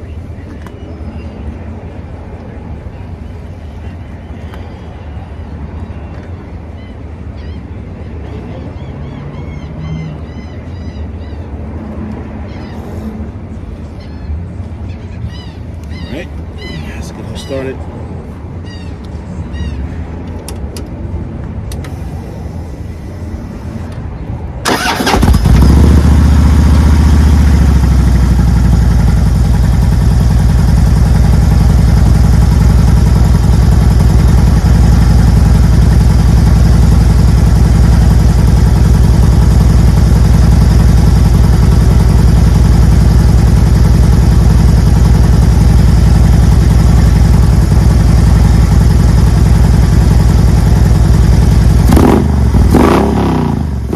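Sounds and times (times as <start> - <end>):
motorcycle engine starting and idling: 21.6 - 24.0, 24.6 - 53.9.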